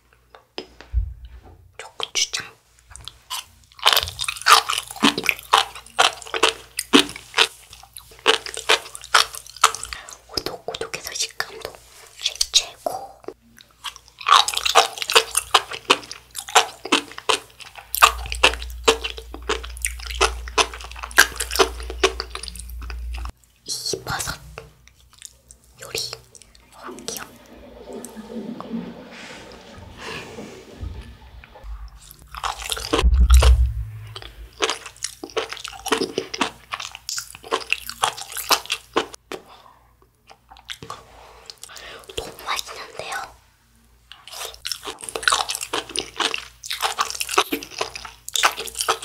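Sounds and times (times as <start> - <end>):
low thud: 0.9 - 1.3, 29.8 - 34.6
wet chewing with popping clicks: 2.9 - 11.8, 13.2 - 23.4, 24.1 - 27.2, 34.2 - 39.4, 40.1 - 41.0, 44.1 - 49.0.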